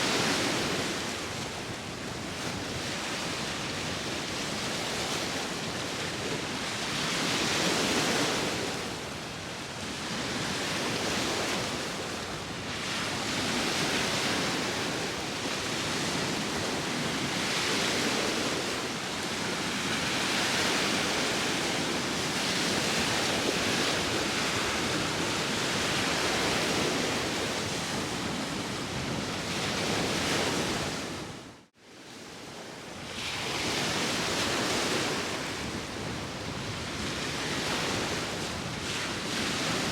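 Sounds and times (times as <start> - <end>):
wind: 0.0 - 39.9.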